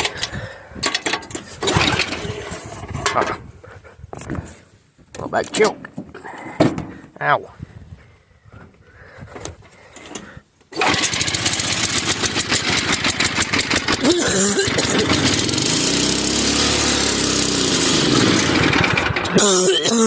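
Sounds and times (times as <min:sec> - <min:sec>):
small engine running unevenly: 0:10.8 - 0:19.5.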